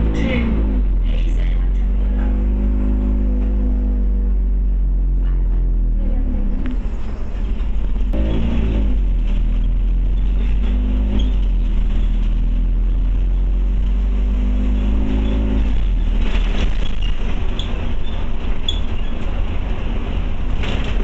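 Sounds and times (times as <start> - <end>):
bus engine rumble: 0.0 - 21.0
drivetrain whine: 0.0 - 21.0
rattles and clicks: 6.6 - 14.0, 15.2 - 21.0.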